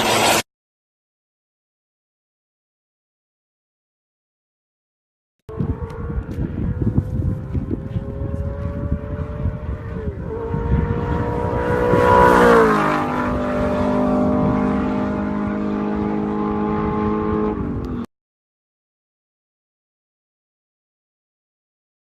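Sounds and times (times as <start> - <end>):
car engine passing by: 5.5 - 17.7.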